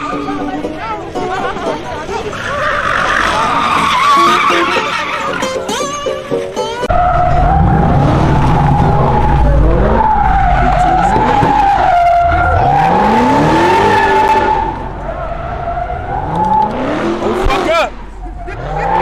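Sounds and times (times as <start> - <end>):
car tyres squealing: 2.2 - 19.0
car engine revving: 6.9 - 19.0.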